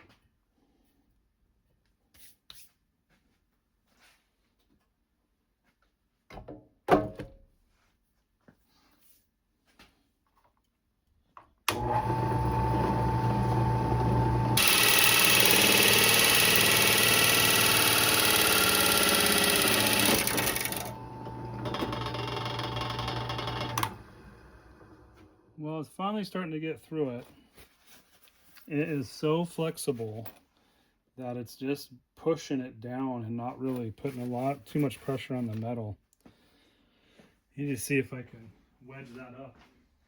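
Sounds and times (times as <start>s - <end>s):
drill cutting sheet metal: 11.7s - 24.4s
power drill whining: 11.7s - 25.4s.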